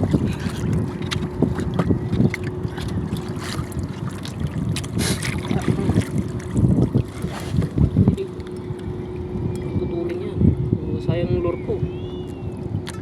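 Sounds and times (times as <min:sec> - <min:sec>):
knocks and splashes: 0:00.0 - 0:08.9
faint steady hum: 0:00.0 - 0:13.0
wind buffeting microphone: 0:00.0 - 0:13.0.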